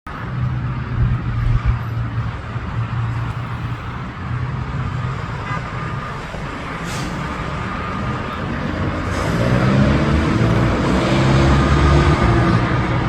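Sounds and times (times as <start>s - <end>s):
low engine rumble: 0.1s - 13.0s
low buffeting thumps: 0.8s - 4.1s.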